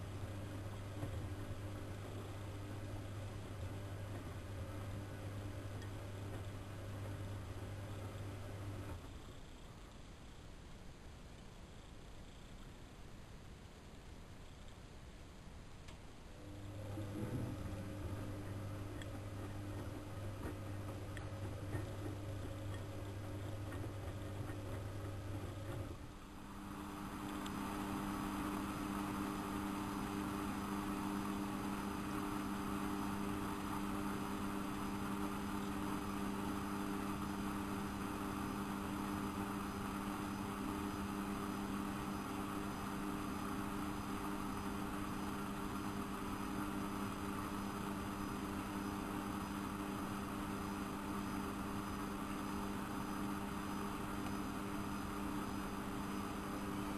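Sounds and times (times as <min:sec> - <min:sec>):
washing machine motor whirring: 0:00.0 - 0:09.6, 0:16.3 - 0:56.9
low steady hum: 0:00.0 - 0:56.9.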